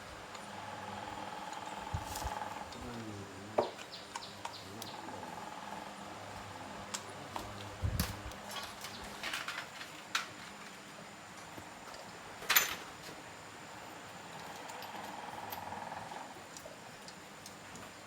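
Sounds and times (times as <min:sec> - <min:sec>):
metal parts clattering: 0:08.5 - 0:10.4, 0:12.5 - 0:12.9.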